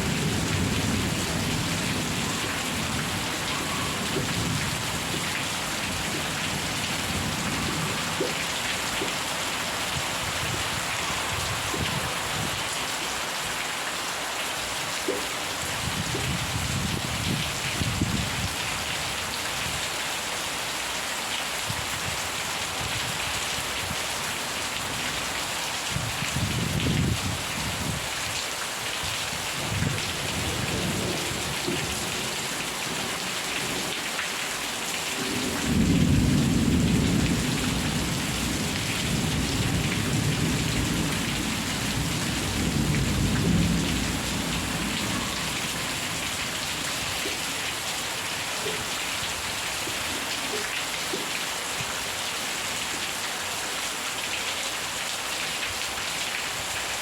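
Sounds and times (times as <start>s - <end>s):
heavy rain falling: 0.0s - 57.0s
thunder rumbling: 35.3s - 46.9s.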